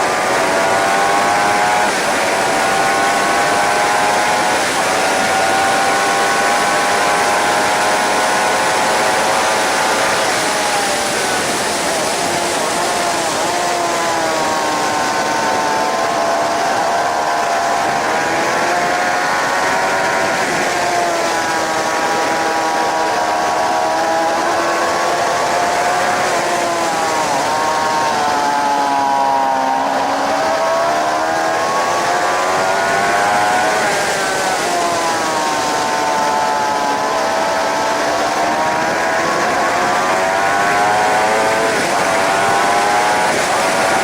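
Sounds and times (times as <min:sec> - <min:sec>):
motorcycle engine revving: 0:00.0 - 0:44.0
wind noise: 0:00.0 - 0:44.0.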